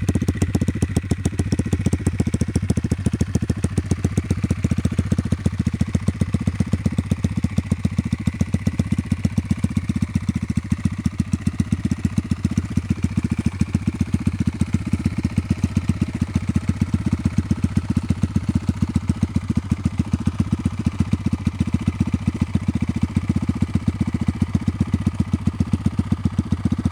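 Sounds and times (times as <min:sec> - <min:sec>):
motorcycle engine idling: 0:00.0 - 0:26.9.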